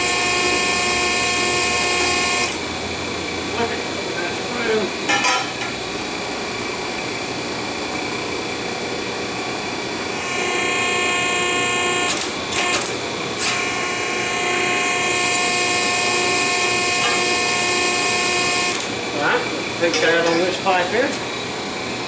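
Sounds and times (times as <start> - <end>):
hydraulic pump motor whining: 0.0 - 2.7, 10.1 - 19.1.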